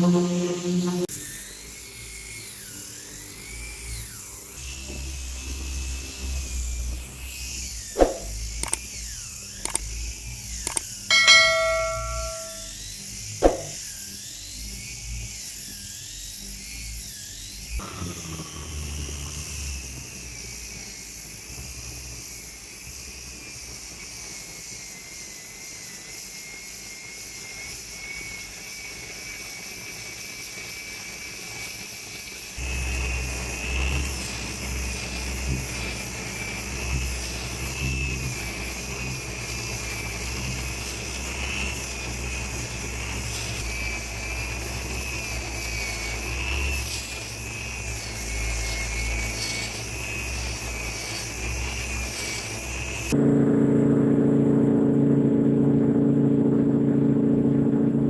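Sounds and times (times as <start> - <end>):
power tool motor whining: 0.0 - 10.9, 32.6 - 53.2
sharp clicks: 8.0 - 8.8, 9.7 - 9.9
short ringing tone: 10.7 - 12.7.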